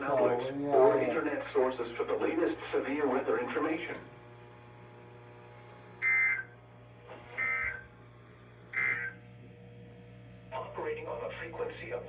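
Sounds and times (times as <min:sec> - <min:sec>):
faint radio hum: 0:06.0 - 0:09.3, 0:10.5 - 0:12.0.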